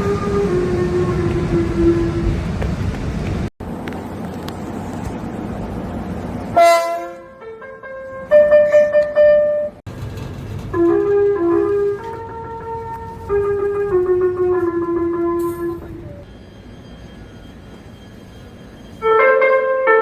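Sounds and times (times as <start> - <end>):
electronic train horn tune: 0.0 - 2.4, 6.5 - 9.8, 10.8 - 18.2, 18.9 - 20.0
subway train running: 0.0 - 20.0.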